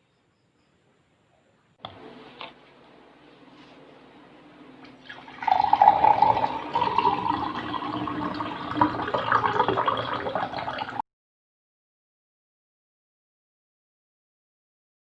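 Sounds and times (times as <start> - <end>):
water running: 4.2 - 11.0.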